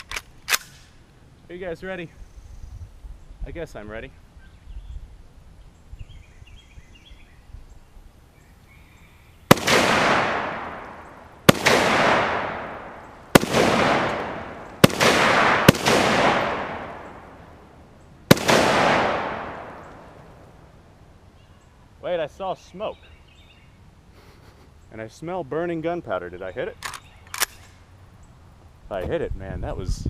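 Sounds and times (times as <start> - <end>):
rifle shots with echo: 9.5 - 20.5.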